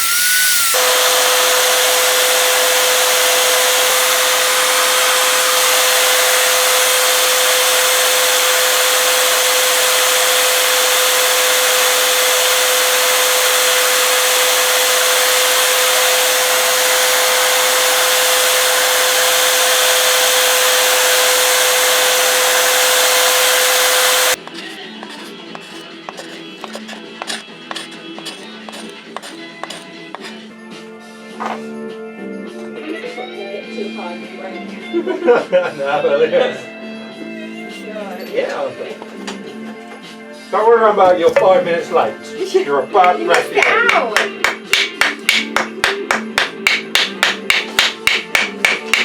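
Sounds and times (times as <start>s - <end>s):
power tool whining: 0.0s - 30.4s.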